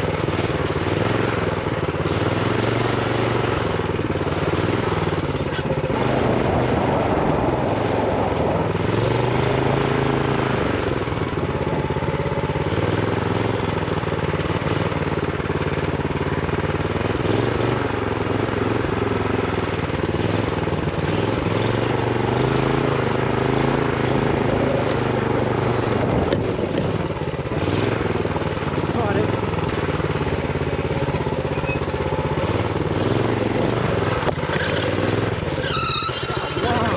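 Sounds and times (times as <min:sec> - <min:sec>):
minibike engine running: 0:00.0 - 0:36.9.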